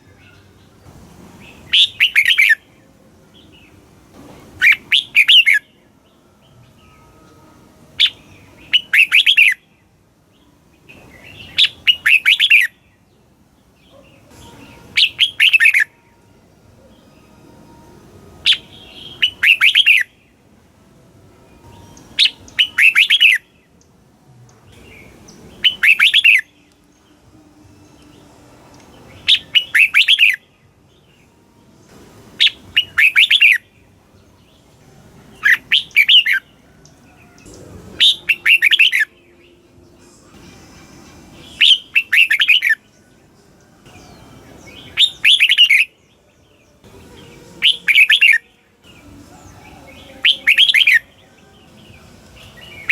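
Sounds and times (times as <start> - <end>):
bird singing whistled notes: 1.4 - 3.8, 4.6 - 7.3, 8.0 - 9.8, 10.4 - 13.1, 13.9 - 16.1, 18.4 - 20.4, 21.5 - 23.8, 24.8 - 28.3, 29.0 - 31.3, 32.4 - 34.6, 35.4 - 40.3, 41.4 - 43.2, 43.8 - 52.9.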